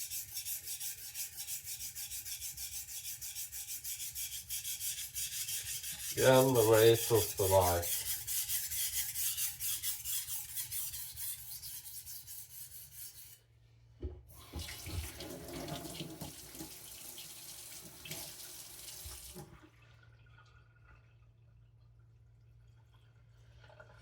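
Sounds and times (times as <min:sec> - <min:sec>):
knife sharpening on whetstone: 0:00.0 - 0:13.4
water running: 0:05.5 - 0:08.3, 0:14.3 - 0:20.0
knock: 0:14.0 - 0:14.2.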